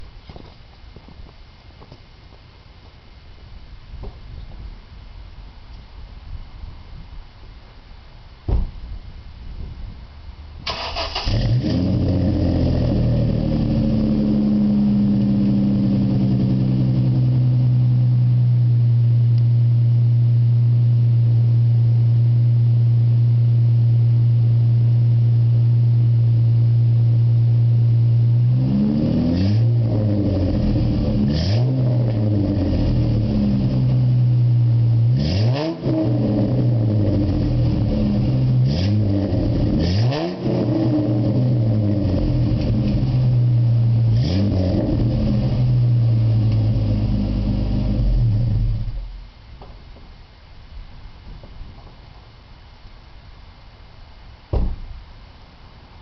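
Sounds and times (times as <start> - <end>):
car engine starting and idling: 10.6 - 23.4, 24.3 - 49.5
engine revs blipped: 10.7 - 18.8, 28.1 - 49.2.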